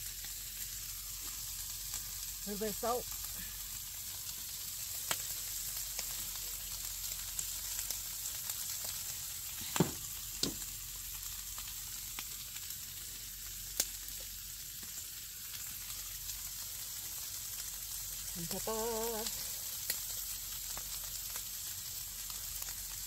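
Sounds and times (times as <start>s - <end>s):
food sizzling on a griddle: 0.0s - 23.0s.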